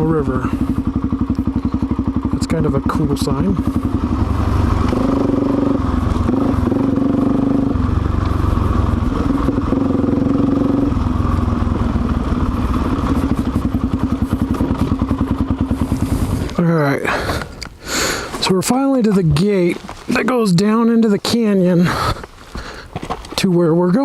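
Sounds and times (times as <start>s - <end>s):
motorcycle engine running: 0.0s - 17.5s.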